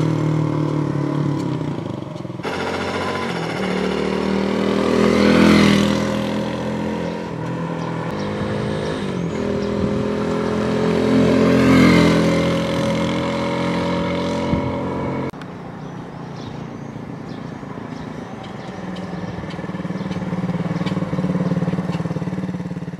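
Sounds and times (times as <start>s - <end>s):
moped engine passing by: 0.0s - 15.3s, 16.6s - 22.9s.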